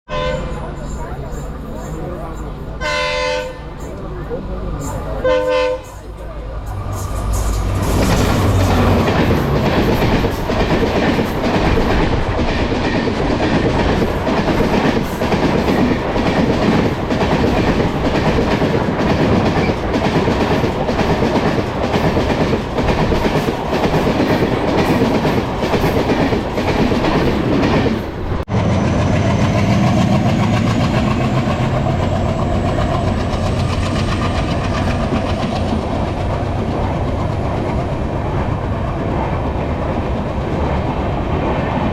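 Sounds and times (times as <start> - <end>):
train wheels clattering over rail joints: 6.7 - 28.2, 29.0 - 40.7.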